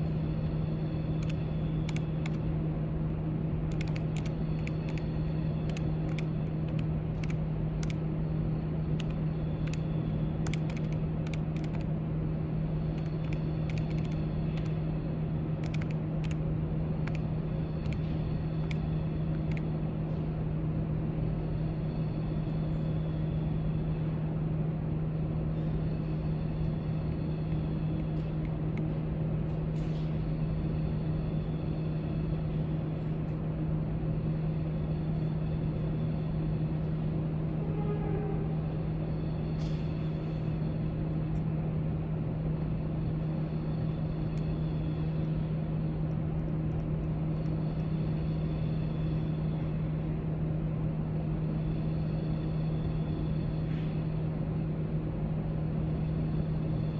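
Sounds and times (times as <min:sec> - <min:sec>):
low room hum: 0:00.0 - 0:56.9
keyboard typing clicks: 0:01.2 - 0:02.4, 0:03.7 - 0:08.0, 0:09.0 - 0:09.8, 0:10.4 - 0:11.9, 0:13.0 - 0:14.8, 0:15.6 - 0:16.4, 0:17.0 - 0:17.2.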